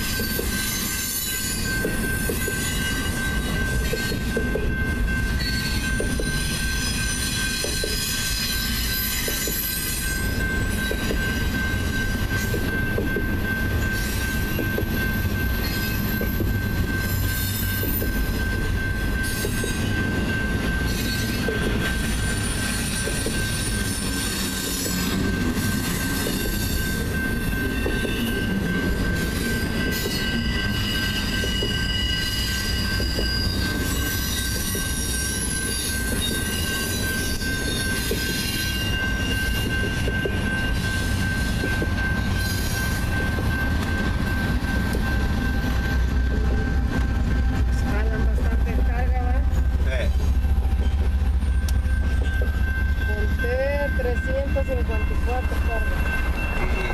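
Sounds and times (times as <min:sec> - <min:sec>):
crossing bell ringing: 0:00.0 - 0:56.9
diesel locomotives passing: 0:00.0 - 0:56.9
train wheels rumbling on rails: 0:00.0 - 0:56.9
high-pitched wheel squeal: 0:20.9 - 0:43.2.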